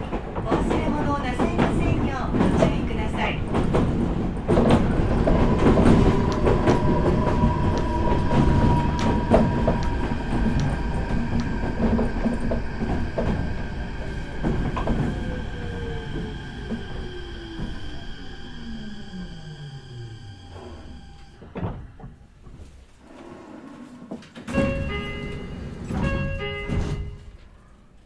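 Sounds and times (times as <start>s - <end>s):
train wheels clicking over rail joints: 0.0s - 19.5s, 24.1s - 27.6s
train motor whine: 4.5s - 22.1s.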